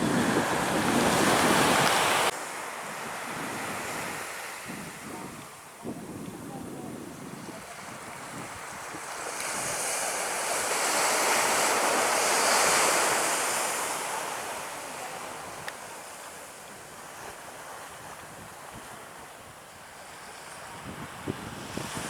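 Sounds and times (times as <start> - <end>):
wind noise: 0.0 - 10.2, 20.2 - 22.0
surf: 0.0 - 22.0.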